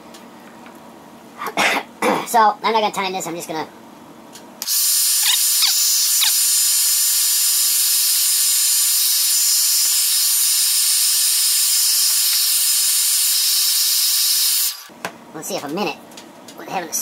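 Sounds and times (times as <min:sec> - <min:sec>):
hot-air blower hissing: 0:04.6 - 0:14.9.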